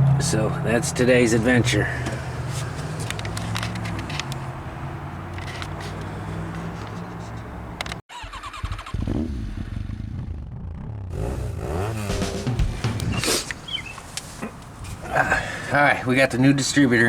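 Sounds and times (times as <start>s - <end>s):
engine idling: 0.0s - 4.6s.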